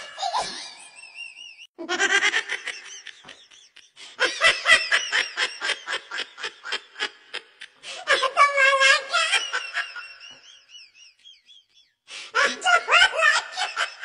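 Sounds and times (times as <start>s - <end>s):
person laughing: 0.0s - 11.8s, 12.4s - 14.0s.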